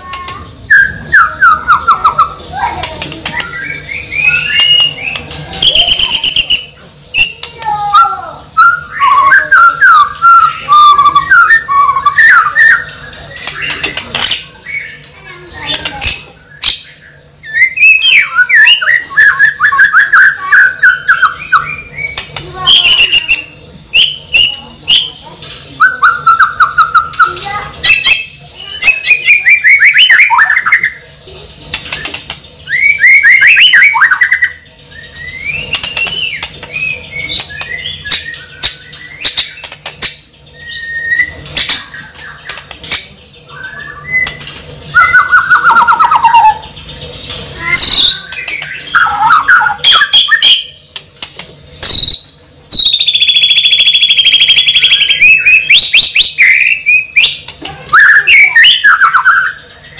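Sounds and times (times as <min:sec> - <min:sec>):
sharp clicks: 0:02.8 - 0:03.6, 0:31.7 - 0:32.5, 0:35.7 - 0:36.8, 0:37.4 - 0:40.2, 0:42.4 - 0:43.1, 0:50.9 - 0:51.6
bird pulsing calls: 0:31.9 - 0:34.6, 0:43.5 - 0:46.8.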